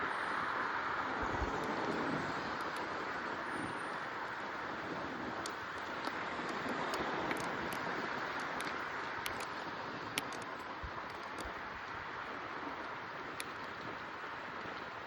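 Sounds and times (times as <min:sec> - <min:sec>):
wind rushing while cycling: 0:00.0 - 0:15.0
sharp little clicks: 0:05.4 - 0:11.6.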